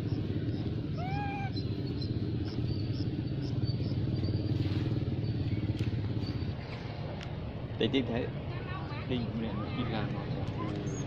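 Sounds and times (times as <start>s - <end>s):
baby monkey cry: 0.9s - 1.7s.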